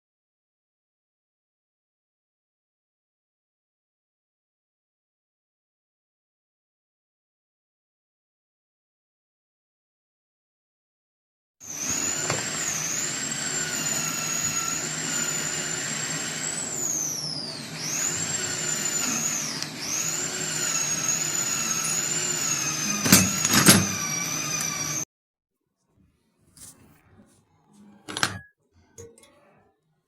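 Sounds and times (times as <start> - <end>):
power tool whining: 11.6 - 25.1.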